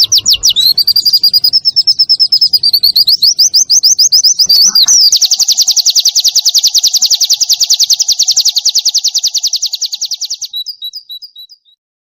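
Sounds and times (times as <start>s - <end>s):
bird singing rapid trill: 0.0s - 11.8s.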